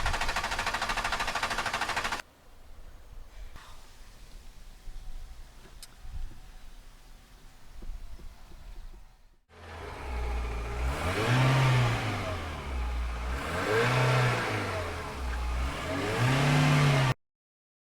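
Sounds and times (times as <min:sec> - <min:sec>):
car engine revving: 0:09.5 - 0:17.2.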